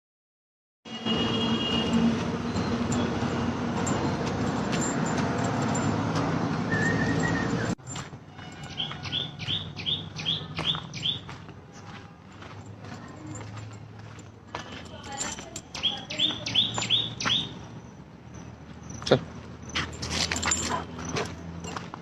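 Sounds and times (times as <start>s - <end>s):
bird chirping: 8.7s - 11.9s, 15.8s - 19.8s.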